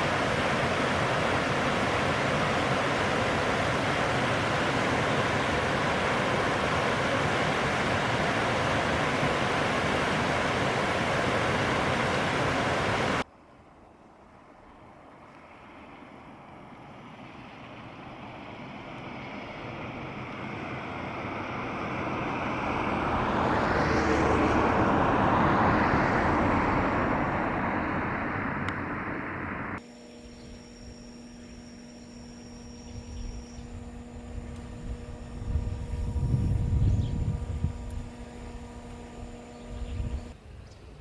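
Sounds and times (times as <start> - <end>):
vehicle passing: 0.0 - 13.2, 17.8 - 29.8
faint steady hum with tones: 0.0 - 41.0.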